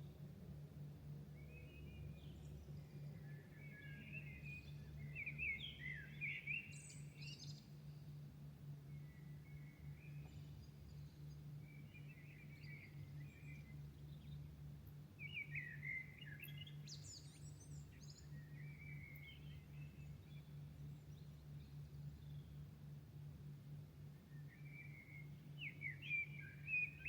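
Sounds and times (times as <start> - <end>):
steady low hum: 0.0 - 27.0
birds chirping and warbling: 1.4 - 7.9.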